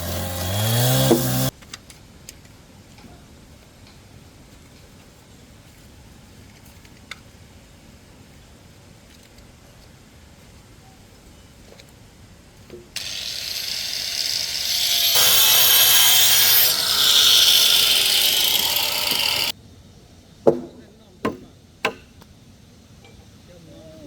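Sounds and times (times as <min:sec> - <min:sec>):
power tool working on wood: 0:00.0 - 0:01.5, 0:13.0 - 0:19.5.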